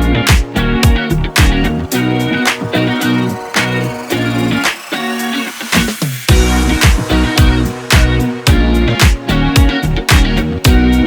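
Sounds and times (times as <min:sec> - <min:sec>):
guitar music with drum beat: 0:00.0 - 0:11.0.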